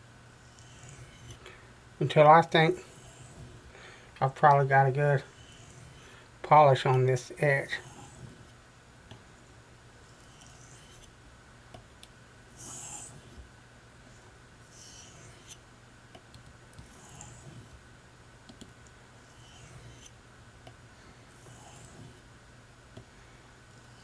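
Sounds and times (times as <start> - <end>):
faint steady hum: 0.0 - 24.0
knife rasping on oilstone: 0.4 - 1.4, 2.8 - 3.7, 5.1 - 6.2, 7.7 - 8.5, 10.0 - 11.1, 12.6 - 13.4, 14.6 - 15.6, 16.8 - 17.8, 19.2 - 20.1, 21.3 - 22.2.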